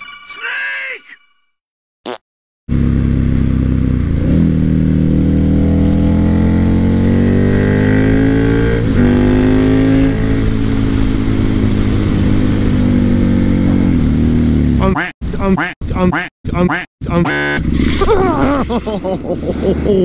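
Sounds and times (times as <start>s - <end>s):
motorcycle engine accelerating: 2.7s - 15.0s, 17.2s - 20.0s.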